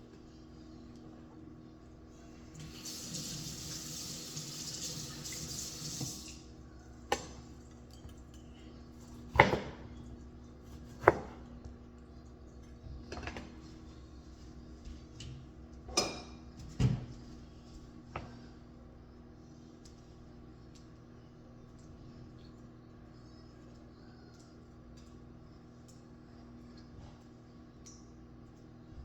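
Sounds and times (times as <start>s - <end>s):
kitchen tap running: 2.5s - 6.5s
dishes and pots clinking: 15.9s - 16.9s.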